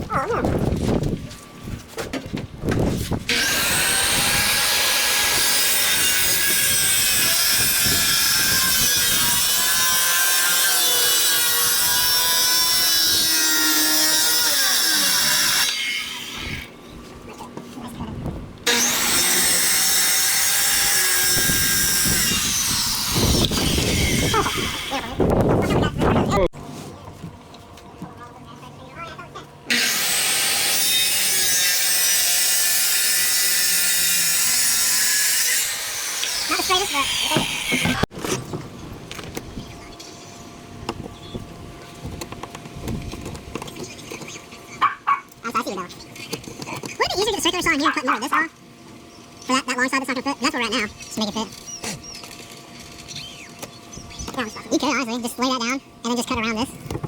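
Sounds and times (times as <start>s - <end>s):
power saw cutting wood: 3.3s - 16.7s, 18.6s - 25.2s, 29.7s - 38.4s.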